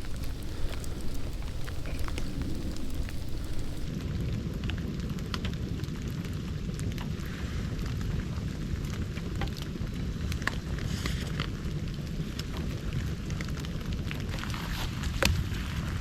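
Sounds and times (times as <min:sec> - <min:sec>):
campfire burning: 0:00.0 - 0:03.9
fire crackles and pops: 0:00.0 - 0:03.9
light rain: 0:00.0 - 0:03.9.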